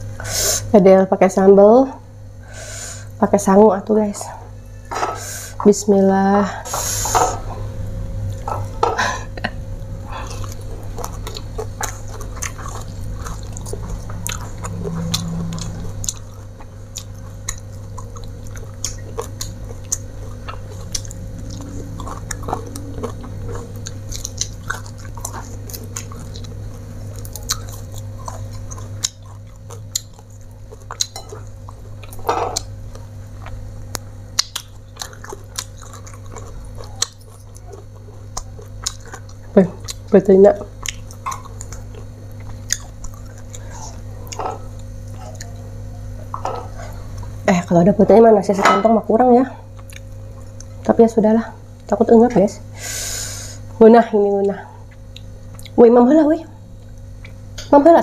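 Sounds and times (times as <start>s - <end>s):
steady low hum: 0.0s - 58.0s
person chewing and crunching: 10.0s - 47.4s, 49.6s - 50.9s, 54.8s - 55.8s.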